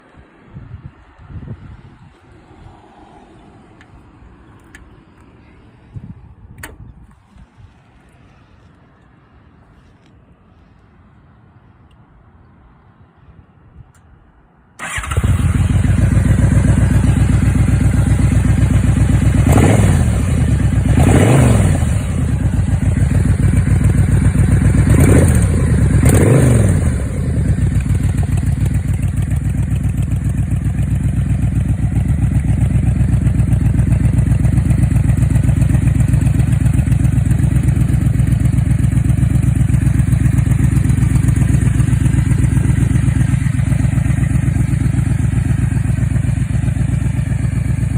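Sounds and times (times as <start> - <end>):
motorcycle engine idling: 14.8 - 47.9
motorcycle engine revving: 14.8 - 47.9.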